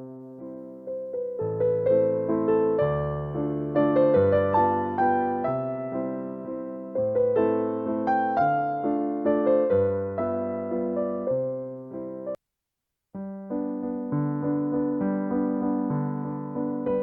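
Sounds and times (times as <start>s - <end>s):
slow piano music: 0.0s - 12.4s, 13.2s - 17.0s.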